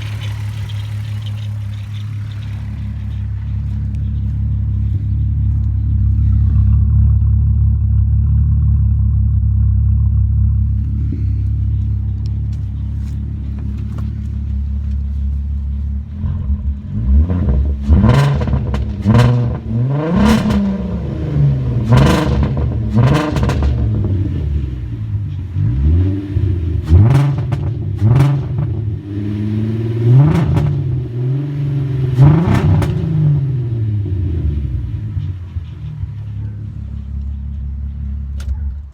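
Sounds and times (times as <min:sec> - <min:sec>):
engine revving in blips: 0:00.0 - 0:08.0, 0:16.0 - 0:38.5
car engine idling: 0:00.0 - 0:38.9.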